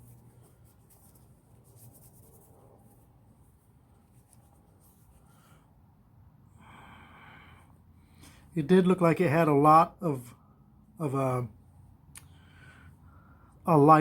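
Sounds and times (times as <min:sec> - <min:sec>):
faint rubbing and handling of parts: 0:00.0 - 0:06.5.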